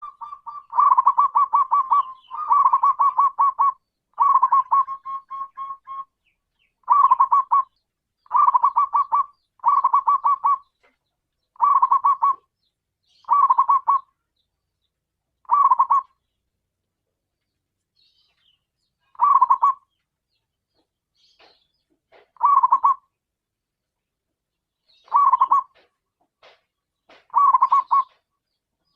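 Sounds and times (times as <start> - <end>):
zebra dove cooing: 0.0 - 6.1, 6.8 - 10.7, 11.6 - 12.5, 13.2 - 14.1, 15.4 - 16.2, 19.1 - 19.9, 22.3 - 23.1, 25.1 - 25.8, 27.3 - 28.1.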